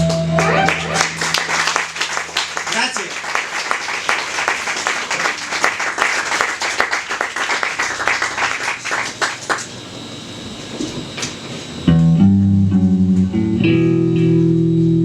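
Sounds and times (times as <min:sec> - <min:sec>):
audience clapping: 0:00.0 - 0:09.8
low steady hum: 0:00.0 - 0:15.0.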